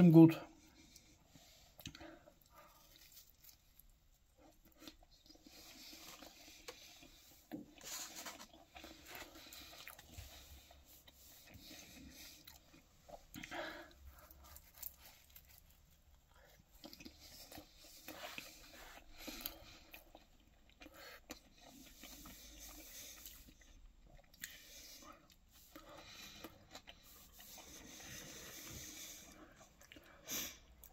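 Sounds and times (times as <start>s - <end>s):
person chewing pizza: 0.2s - 30.9s.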